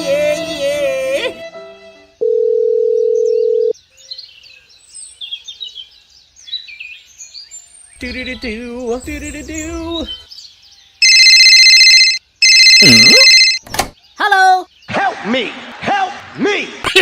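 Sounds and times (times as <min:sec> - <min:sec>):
music with wavering singing: 0:00.0 - 0:02.2
faint birds chirping: 0:03.2 - 0:11.3, 0:13.7 - 0:15.1
loud electronic beep: 0:11.0 - 0:13.6.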